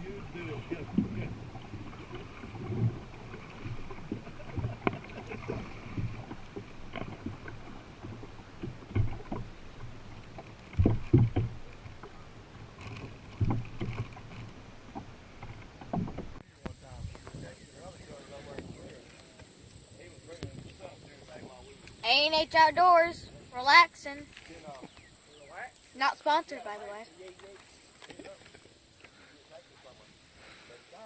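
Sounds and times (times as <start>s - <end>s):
paddle knocking against hull: 0.0s - 19.6s
paddle splashes: 0.0s - 31.0s.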